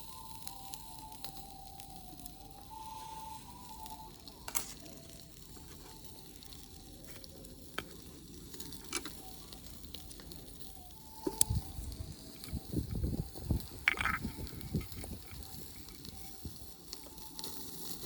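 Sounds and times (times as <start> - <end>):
food sizzling: 0.0 - 18.0
wood fire crackling: 0.0 - 18.0.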